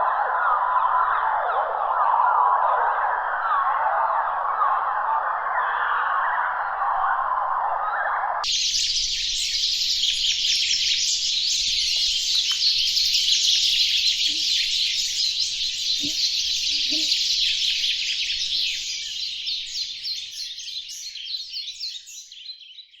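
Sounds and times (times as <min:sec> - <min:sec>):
dense layered birdsong: 0:00.0 - 0:23.0.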